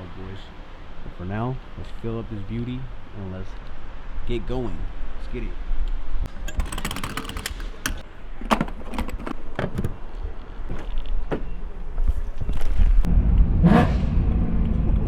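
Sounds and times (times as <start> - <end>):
handling clicks and knocks: 6.3 - 11.5
car engine rumble: 7.5 - 15.0.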